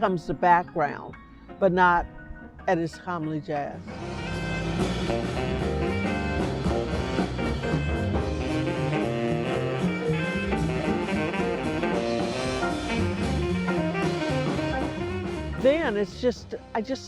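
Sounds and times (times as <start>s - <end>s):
jazz band playing: 3.9s - 17.0s.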